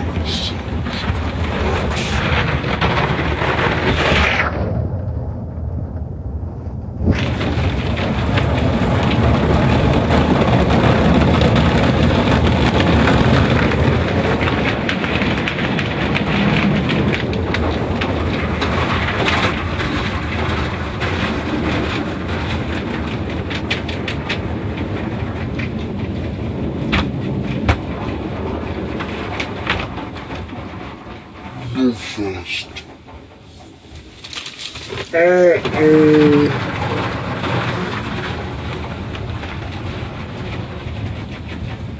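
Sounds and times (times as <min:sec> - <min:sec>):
car wash machinery rushing: 0:00.0 - 0:03.7.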